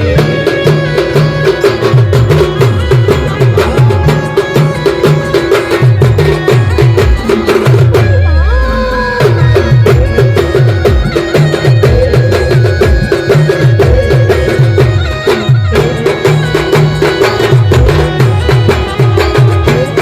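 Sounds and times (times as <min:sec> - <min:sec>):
band lead melody: 0:00.0 - 0:20.0.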